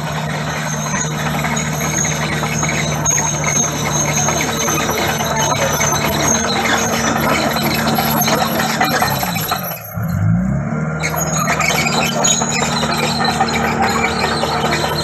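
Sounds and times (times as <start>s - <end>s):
bulldozer diesel engine under load: 0.0s - 15.0s
high thin squeaks: 0.2s - 10.0s.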